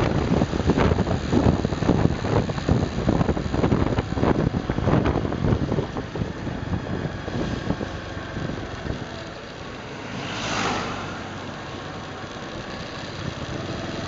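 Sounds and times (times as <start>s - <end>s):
small motorcycle engine running: 0.0s - 14.0s
wind buffeting microphone: 0.0s - 14.0s
rushing noise: 9.6s - 13.1s.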